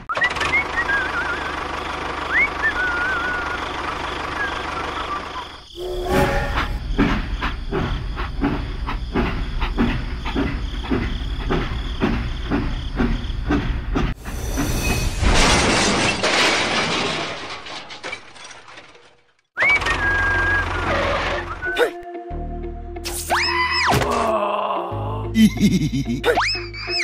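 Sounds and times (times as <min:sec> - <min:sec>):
vehicle engine running: 0:00.3 - 0:05.6
train wheels clickety-clack: 0:06.9 - 0:14.2.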